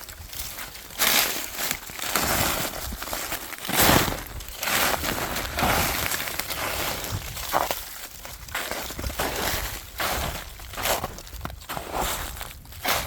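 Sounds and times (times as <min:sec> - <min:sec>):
footsteps crunching on a trail: 0:00.0 - 0:13.0.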